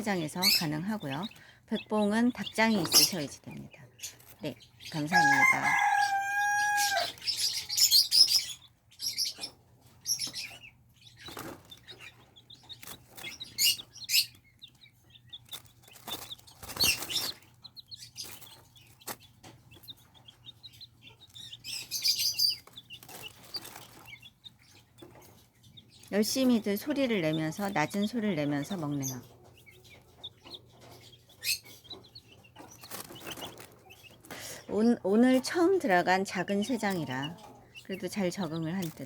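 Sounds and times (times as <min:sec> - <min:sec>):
chicks peeping: 0:00.0 - 0:39.0
taps and rustles: 0:29.4 - 0:34.6.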